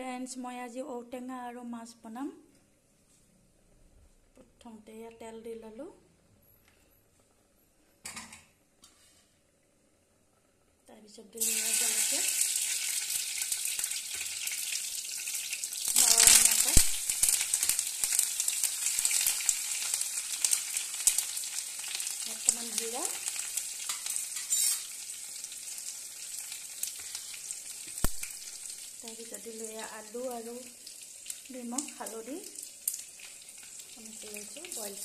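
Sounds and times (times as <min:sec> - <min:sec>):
vegetables sizzling in hot oil: 0:11.1 - 0:35.0
oil spatter crackles: 0:11.4 - 0:35.0.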